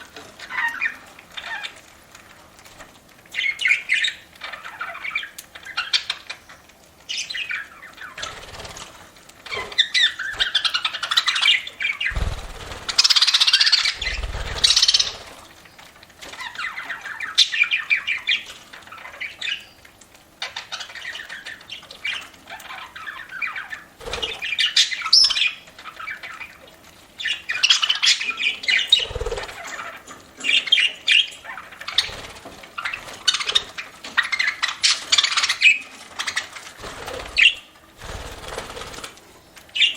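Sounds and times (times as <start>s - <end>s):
budgerigars chirping: 9.5s - 15.4s, 20.4s - 26.6s, 27.2s - 39.1s.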